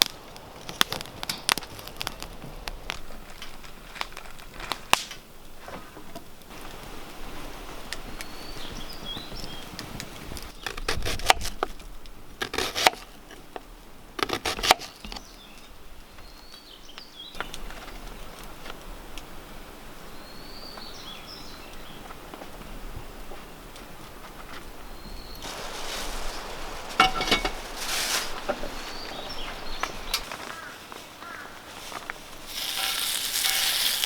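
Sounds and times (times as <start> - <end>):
sharp crackling clicks: 0.0 - 5.3
steady hiss: 25.4 - 30.6, 31.7 - 34.0.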